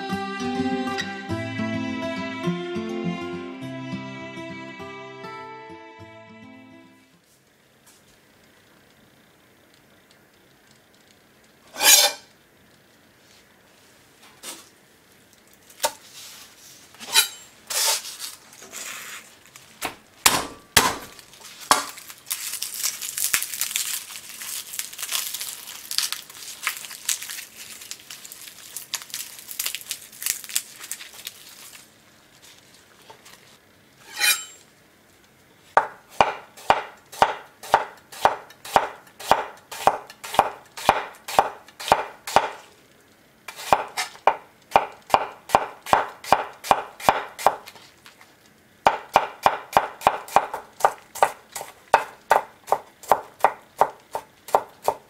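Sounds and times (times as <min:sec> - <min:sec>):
garlic skin crinkling: 0:17.2 - 0:34.4
knife chopping on board: 0:19.8 - 0:21.9, 0:35.8 - 0:42.6, 0:43.5 - 0:47.7, 0:48.9 - 0:55.0.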